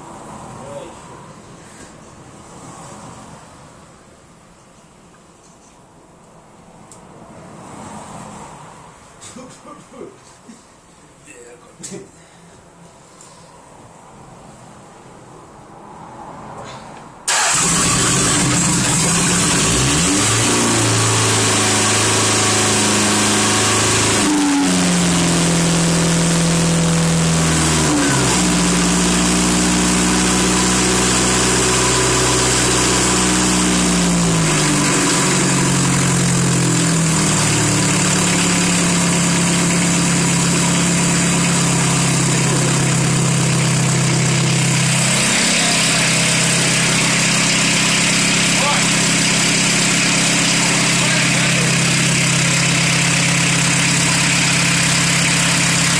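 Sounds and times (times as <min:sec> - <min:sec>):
diesel engine starting and revving: 0:16.6 - 0:55.9.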